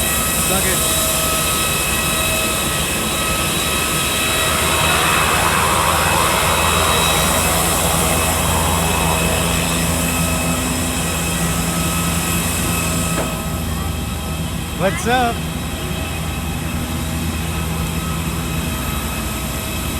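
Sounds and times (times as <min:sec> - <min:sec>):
jet engines whining: 0:00.0 - 0:19.9.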